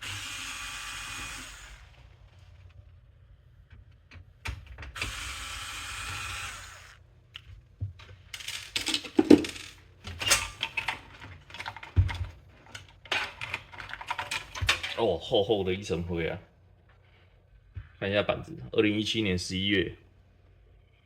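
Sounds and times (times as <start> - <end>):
electric screwdriver running: 0.0 - 2.0, 5.0 - 7.0
screws and metal parts clattering: 8.3 - 15.1.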